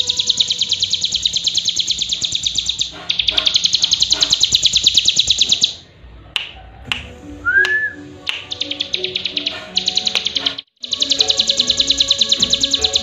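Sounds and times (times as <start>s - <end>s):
bird rattling trill: 0.0s - 5.8s, 8.4s - 13.0s
sharp clicks: 6.4s - 13.0s.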